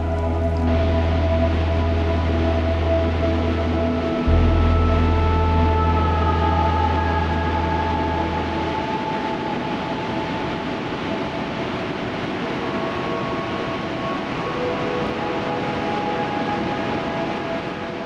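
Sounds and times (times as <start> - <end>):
deep low drone: 0.0 - 11.1
ambient synth tones: 0.0 - 18.0
steady rushing noise: 0.0 - 18.0.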